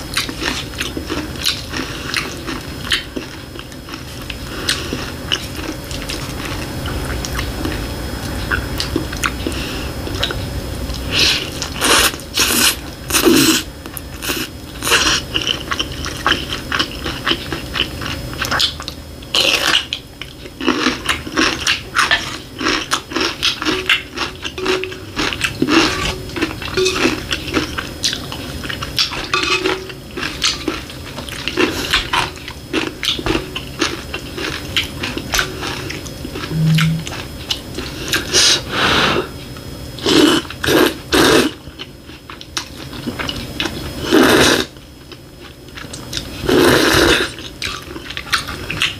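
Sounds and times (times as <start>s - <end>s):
faint steady hum: 0.0s - 48.9s
chewing and mouth clicks: 0.1s - 37.0s.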